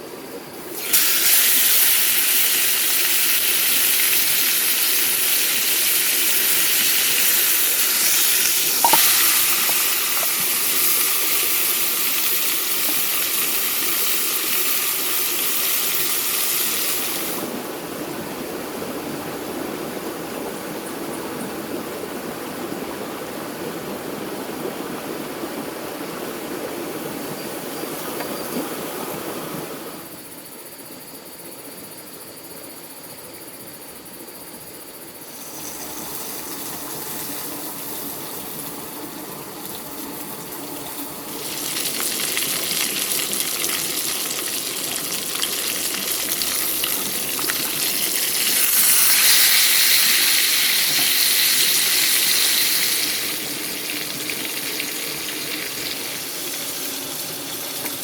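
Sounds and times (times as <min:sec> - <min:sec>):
water running and splashing: 0:00.7 - 0:20.1, 0:35.4 - 0:58.0.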